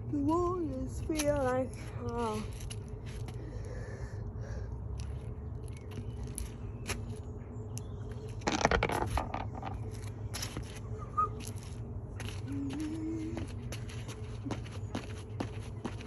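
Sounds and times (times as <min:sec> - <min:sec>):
steady low hum: 0:00.0 - 0:16.0
broken parts crunching and scraping: 0:08.3 - 0:10.6.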